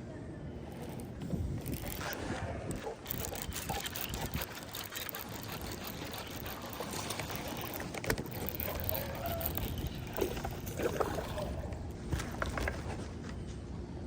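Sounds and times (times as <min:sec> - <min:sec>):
water and kayak hull noise: 0:02.7 - 0:13.0.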